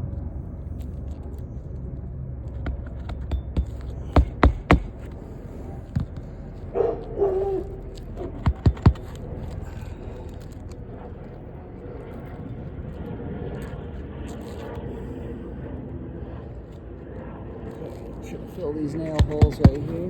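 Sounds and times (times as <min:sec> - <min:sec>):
low steady rumble: 0:00.0 - 0:20.0
hammer striking nails: 0:02.6 - 0:06.2, 0:08.2 - 0:09.8, 0:19.0 - 0:20.0.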